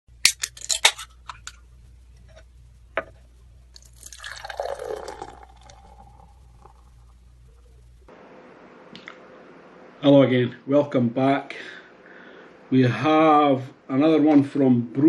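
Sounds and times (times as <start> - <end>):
beer pouring into a glass: 3.8 - 6.9.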